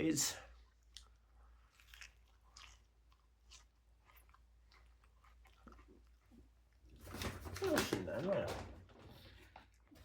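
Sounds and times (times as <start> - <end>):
chewing with soft crunches: 0.1 - 7.0.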